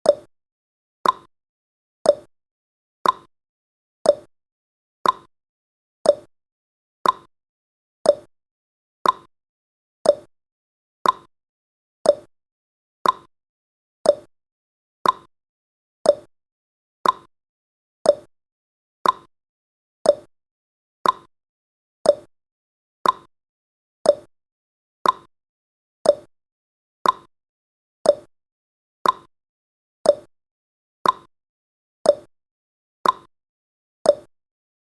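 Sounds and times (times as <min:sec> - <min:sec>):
timer ticking clicks: 0:00.0 - 0:00.3, 0:01.0 - 0:01.3, 0:02.0 - 0:02.3, 0:03.0 - 0:03.3, 0:04.0 - 0:04.3, 0:05.0 - 0:05.3, 0:06.0 - 0:06.3, 0:07.0 - 0:07.3, 0:08.0 - 0:08.3, 0:09.0 - 0:09.3, 0:10.0 - 0:10.3, 0:11.0 - 0:11.3, 0:12.0 - 0:12.3, 0:13.0 - 0:13.3, 0:14.0 - 0:14.3, 0:15.0 - 0:15.3, 0:16.0 - 0:16.3, 0:17.0 - 0:17.3, 0:18.0 - 0:18.3, 0:19.0 - 0:19.3, 0:20.0 - 0:20.3, 0:21.0 - 0:21.3, 0:22.0 - 0:22.3, 0:23.0 - 0:23.3, 0:24.0 - 0:24.3, 0:25.0 - 0:25.3, 0:26.0 - 0:26.3, 0:27.0 - 0:27.3, 0:28.0 - 0:28.3, 0:29.0 - 0:29.3, 0:30.0 - 0:30.3, 0:31.0 - 0:31.3, 0:32.0 - 0:32.3, 0:33.0 - 0:33.3, 0:34.0 - 0:34.3.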